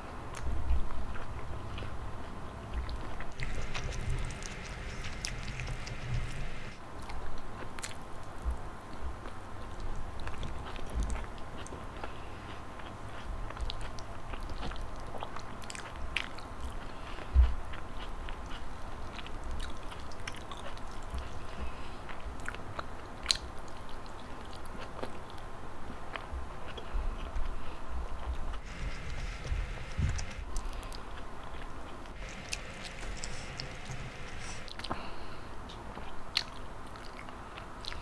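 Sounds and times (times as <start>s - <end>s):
person chewing and biting: 2.7s - 6.7s, 28.5s - 35.0s.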